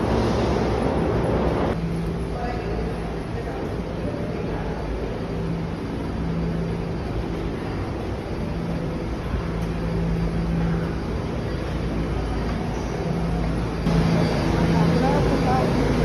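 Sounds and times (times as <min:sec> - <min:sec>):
moving vehicle rumble: 0:00.0 - 0:02.2
constant low hum: 0:00.0 - 0:16.0.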